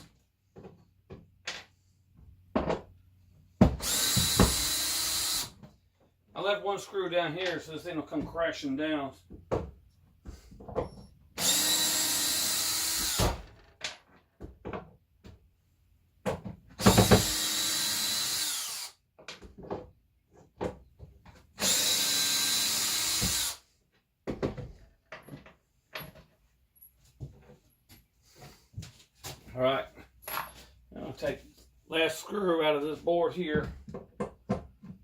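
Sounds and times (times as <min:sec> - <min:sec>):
power drill whining: 0:03.8 - 0:05.6, 0:11.0 - 0:13.6, 0:16.8 - 0:19.0, 0:21.6 - 0:23.6.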